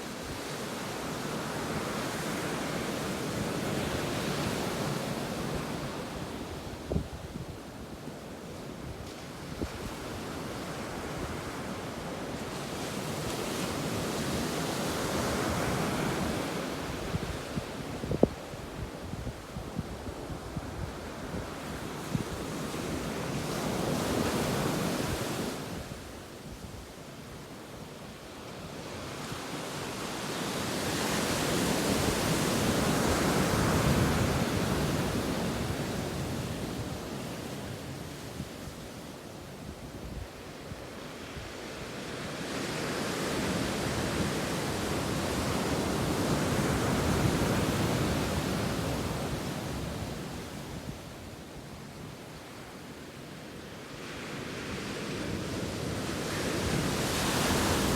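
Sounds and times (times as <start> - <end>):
ocean waves breaking on a beach: 0.0 - 57.9
wind rumble on microphone: 16.3 - 26.9.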